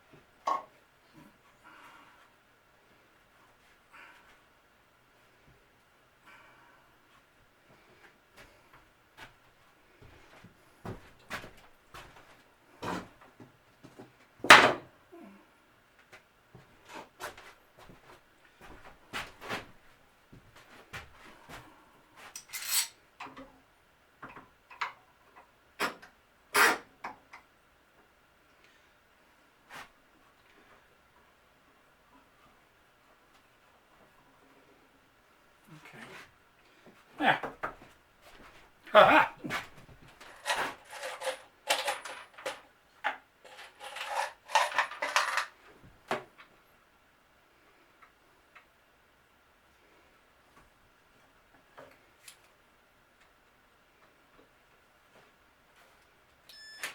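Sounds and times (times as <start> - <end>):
wood pieces and tools handled: 39.5 - 42.7, 43.4 - 45.6
small hard objects clattering: 43.4 - 45.6.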